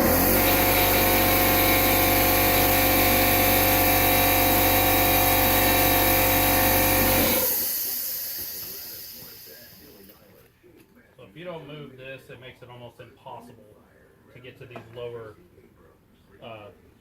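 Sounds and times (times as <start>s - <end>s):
motor whine spinning down: 0.0s - 10.1s
power tool motor running: 0.0s - 10.2s.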